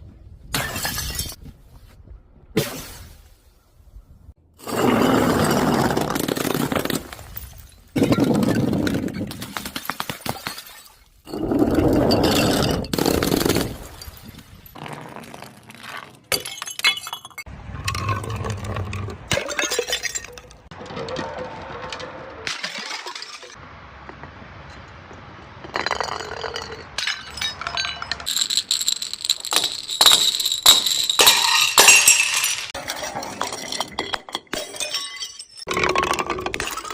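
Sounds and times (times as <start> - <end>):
glass bottles smashing: 0.6 - 1.4, 10.2 - 18.4, 19.3 - 20.7, 22.5 - 23.6, 25.7 - 36.9.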